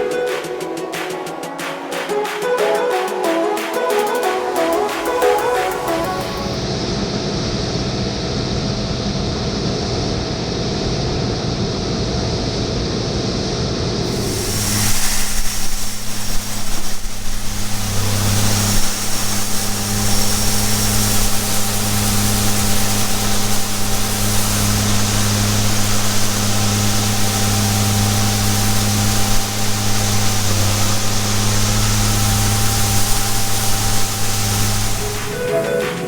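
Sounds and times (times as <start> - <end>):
farm machinery engine running: 14.1 - 36.0.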